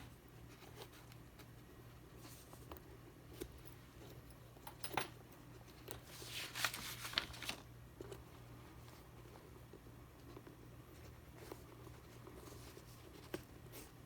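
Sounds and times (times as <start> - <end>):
faint steady hum: 0.0 - 14.0
scratchy rustles: 6.0 - 7.6.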